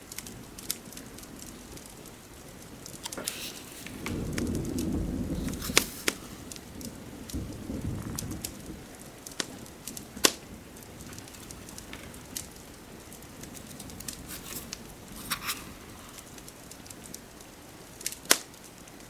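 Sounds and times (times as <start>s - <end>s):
fireplace crackling and popping: 0.0s - 19.0s
rain hissing: 0.0s - 19.0s.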